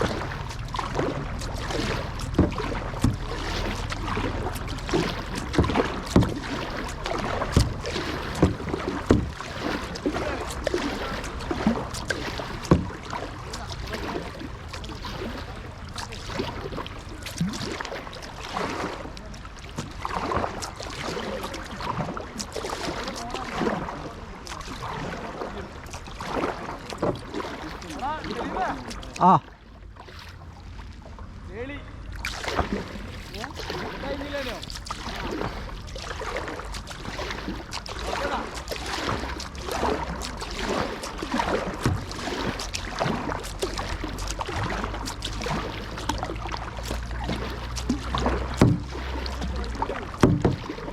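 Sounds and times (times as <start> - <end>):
steady low rumble: 0.0 - 22.6
paddle splashing in water: 0.0 - 50.9.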